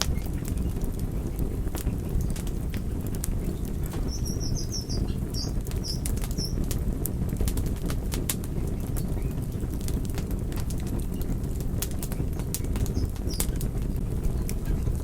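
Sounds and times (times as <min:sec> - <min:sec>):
wood fire crackling: 0:00.0 - 0:15.0
small bird chirping: 0:03.3 - 0:06.7, 0:12.2 - 0:13.7.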